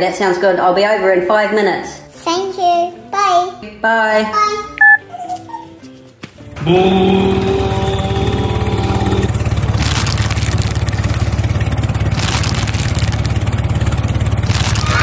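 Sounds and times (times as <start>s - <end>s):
engine running steadily: 6.6s - 15.0s.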